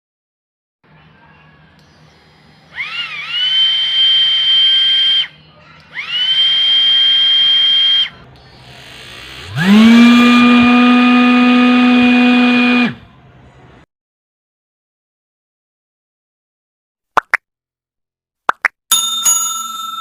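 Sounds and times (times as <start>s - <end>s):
cordless drill motor whine: 1.9s - 5.2s, 5.9s - 13.0s.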